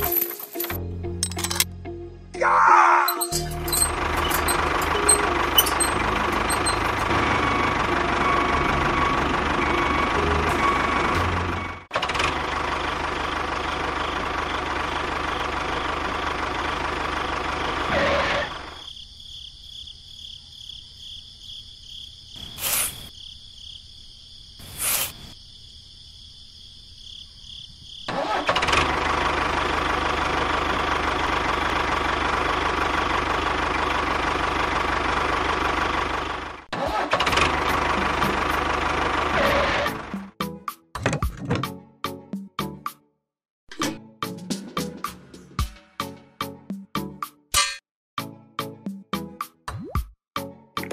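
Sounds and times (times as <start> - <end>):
tractor engine running: 3.1 - 18.8, 28.1 - 40.4.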